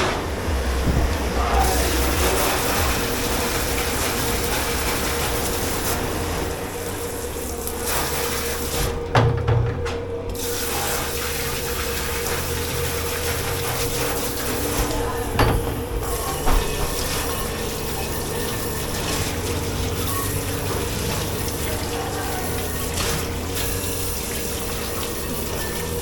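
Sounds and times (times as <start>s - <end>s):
dishes rattling and clattering: 0.0s - 6.5s, 9.0s - 10.3s, 12.4s - 26.0s
machine hum: 0.0s - 26.0s
running water: 0.0s - 26.0s.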